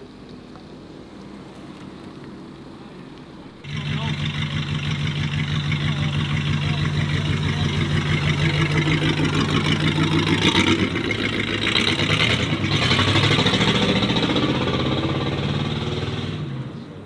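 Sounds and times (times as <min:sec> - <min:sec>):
car engine pulling away: 0:03.6 - 0:17.0.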